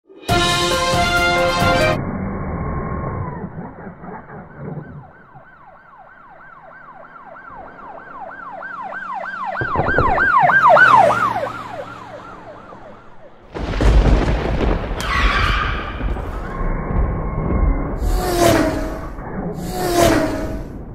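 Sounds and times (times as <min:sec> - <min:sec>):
siren yelping: 0:02.0 - 0:13.5
rushing noise: 0:13.5 - 0:20.9.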